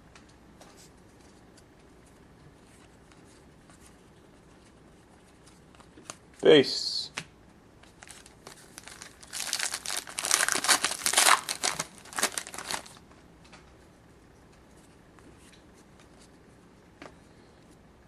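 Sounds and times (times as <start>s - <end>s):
wrapper tearing and crinkling: 8.0s - 13.0s.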